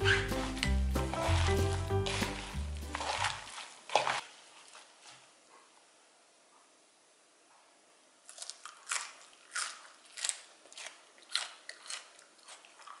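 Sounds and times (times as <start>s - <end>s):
crunchy chewing of raw leaves: 0.0s - 5.2s, 8.2s - 13.0s.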